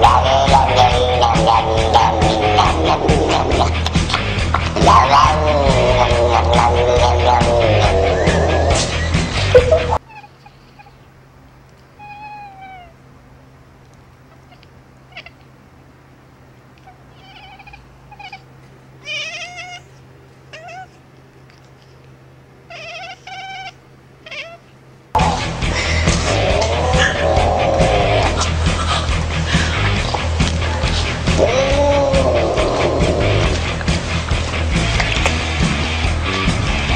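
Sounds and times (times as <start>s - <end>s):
loud music: 0.0s - 10.0s, 25.2s - 36.9s
cat meowing: 9.8s - 11.1s, 12.0s - 13.0s, 14.3s - 15.5s, 16.8s - 21.1s, 22.7s - 24.7s, 30.8s - 33.6s.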